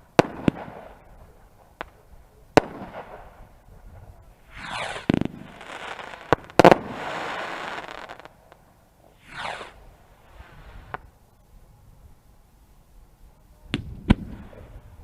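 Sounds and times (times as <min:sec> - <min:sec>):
fireworks crackling: 0:00.0 - 0:11.2
fireworks banging: 0:01.6 - 0:08.4, 0:09.1 - 0:11.1.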